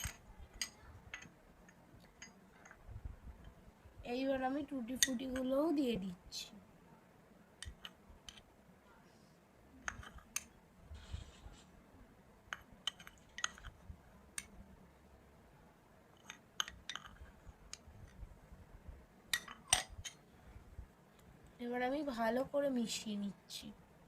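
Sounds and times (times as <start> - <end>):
utensil clinking against bowl: 19.3 - 20.2.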